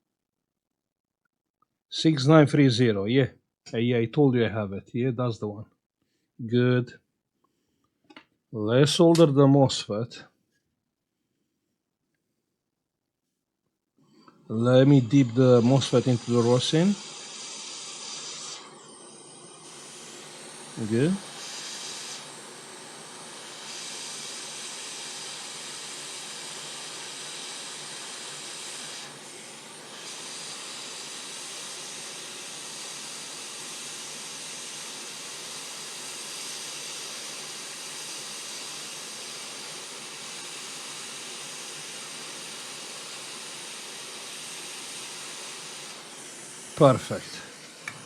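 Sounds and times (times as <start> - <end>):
hot air station hissing: 14.1 - 48.0.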